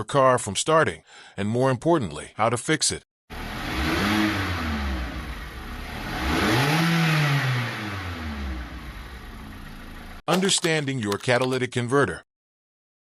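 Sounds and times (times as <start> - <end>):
car engine revving: 3.3 - 10.2
exhaust rush: 3.3 - 10.2.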